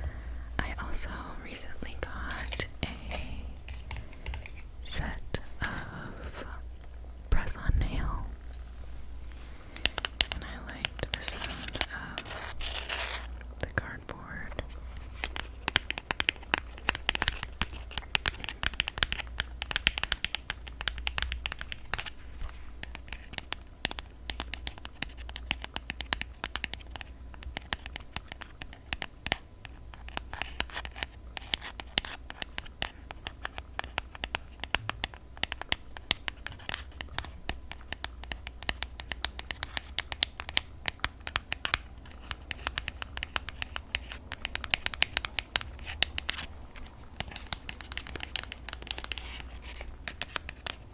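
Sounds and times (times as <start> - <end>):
fingernails tapping on cardboard: 15.2 - 22.2, 22.8 - 50.9.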